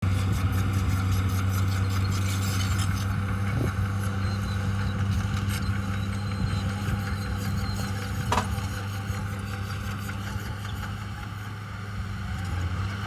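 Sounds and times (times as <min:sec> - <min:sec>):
truck engine droning: 0:00.0 - 0:13.0.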